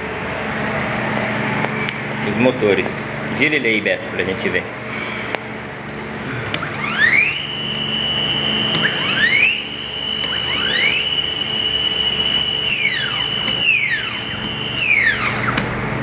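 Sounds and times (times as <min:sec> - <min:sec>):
cnc router motors whining: 0:06.5 - 0:16.0.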